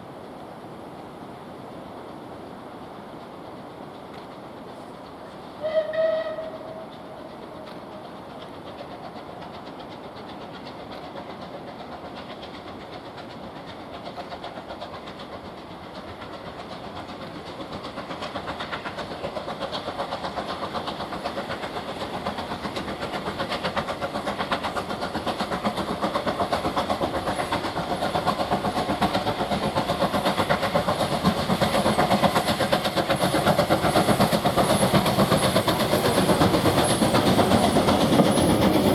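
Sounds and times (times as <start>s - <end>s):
steam locomotive running: 0.0s - 38.9s
steam locomotive whistle: 5.6s - 7.0s.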